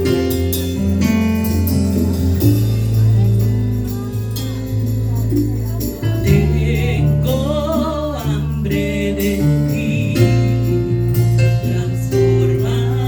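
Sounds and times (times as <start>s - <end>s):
worship band music: 0.0s - 13.0s.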